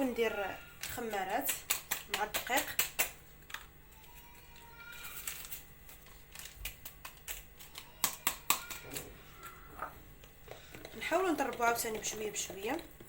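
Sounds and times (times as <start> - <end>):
utensil tapping mixing bowl: 0.8 - 3.2, 9.8 - 13.0.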